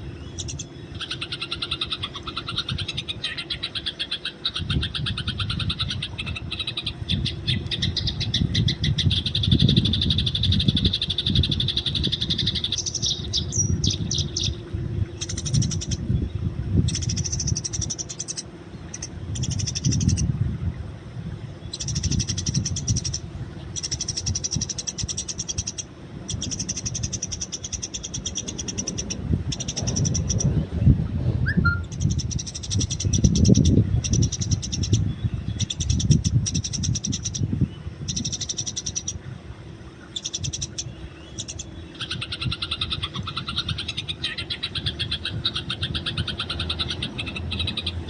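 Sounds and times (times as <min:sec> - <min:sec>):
sparrows chirping: 0:00.0 - 0:20.2, 0:21.6 - 0:30.6, 0:31.5 - 0:39.2, 0:40.0 - 0:48.0
low rumble: 0:28.1 - 0:32.5.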